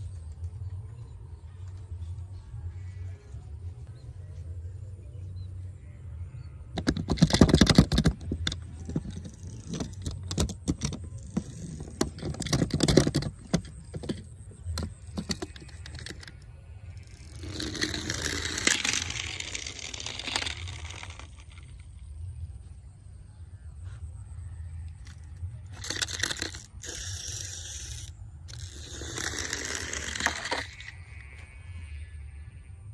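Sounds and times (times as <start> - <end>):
plastic toys rattling and clicking: 6.7 - 22.2, 24.9 - 31.3.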